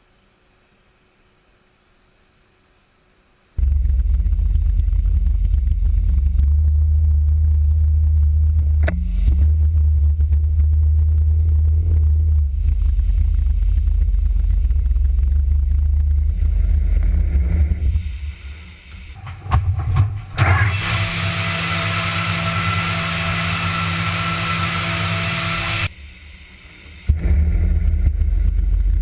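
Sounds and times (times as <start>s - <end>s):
machine whirring hiss with hum: 0.0s - 29.0s
machine low rumble: 3.6s - 29.0s.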